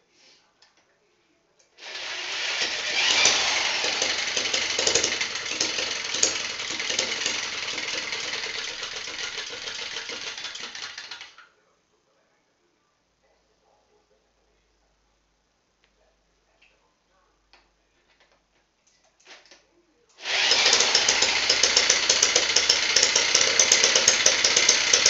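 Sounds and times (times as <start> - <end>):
small engine rattling chatter: 2.6 - 11.4, 20.3 - 25.0.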